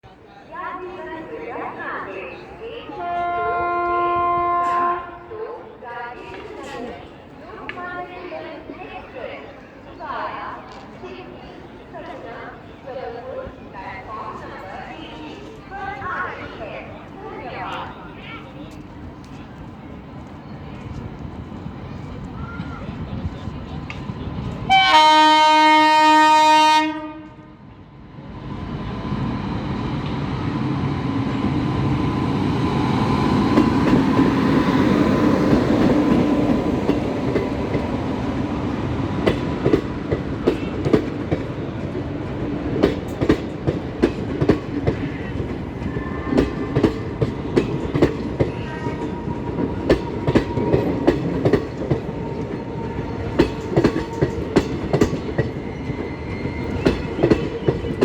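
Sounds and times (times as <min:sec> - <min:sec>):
train running noise: 0:00.6 - 0:58.0
train horn: 0:02.9 - 0:05.4, 0:24.7 - 0:27.6.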